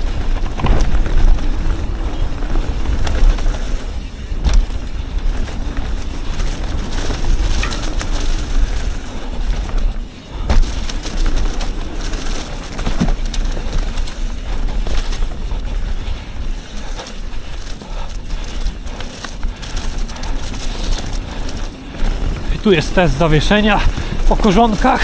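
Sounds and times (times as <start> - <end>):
bike rattling: 0.0 - 25.0
tyres on dirt: 0.0 - 25.0
wind rushing over microphone: 0.0 - 25.0
sharp knocks from bumps: 10.4 - 11.7.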